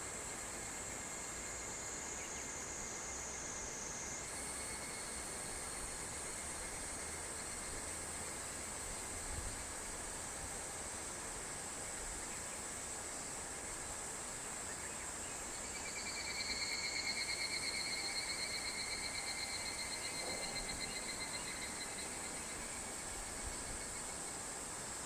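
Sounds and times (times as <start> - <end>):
high-pitched insect hiss: 0.1 - 10.6, 11.9 - 25.0
cicada pulsing trill: 15.4 - 24.6.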